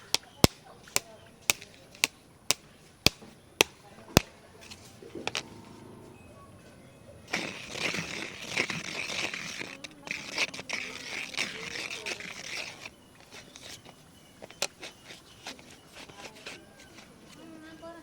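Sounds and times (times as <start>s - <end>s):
scratching on camera body: 7.3s - 17.7s.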